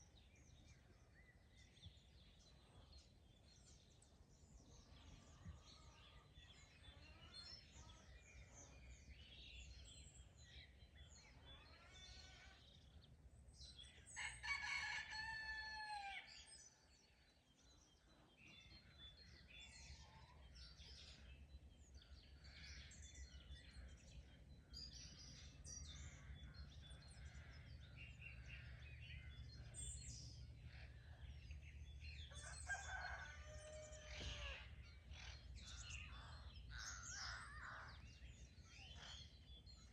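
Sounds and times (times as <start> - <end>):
songbirds chirping: 0.0 - 39.9
rooster crowing: 14.2 - 16.3, 32.3 - 34.7.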